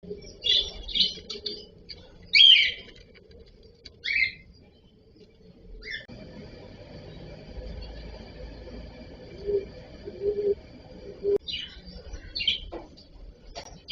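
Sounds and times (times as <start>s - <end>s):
cockatiels chirping and calling: 2.3s - 2.9s, 4.0s - 4.4s, 11.5s - 12.8s.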